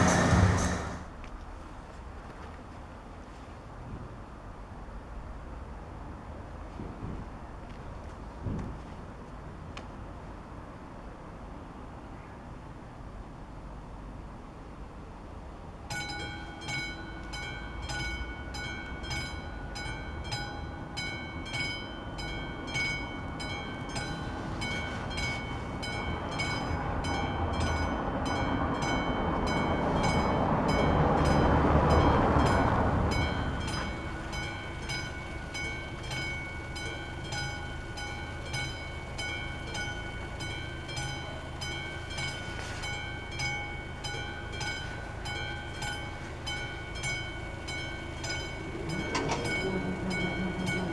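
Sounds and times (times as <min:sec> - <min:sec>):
train rumbling past: 0:00.0 - 0:01.3, 0:16.2 - 0:50.9
level crossing bell ringing: 0:16.0 - 0:50.9.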